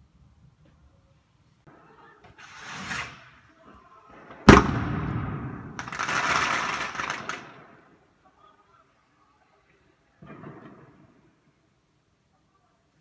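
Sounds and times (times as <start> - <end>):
firework bang: 4.5 - 7.6.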